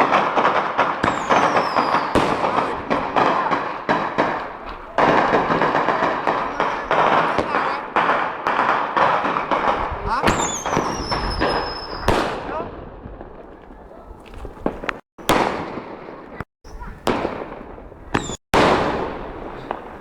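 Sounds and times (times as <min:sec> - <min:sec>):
firework whistle: 0:00.0 - 0:03.3, 0:10.3 - 0:12.2, 0:18.1 - 0:19.8
fireworks crackling: 0:00.0 - 0:20.0.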